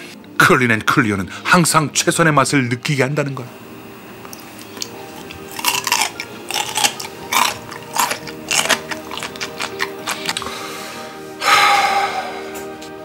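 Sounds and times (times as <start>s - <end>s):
soft background music: 0.0s - 13.0s
crisp crunching chewing: 4.2s - 10.6s.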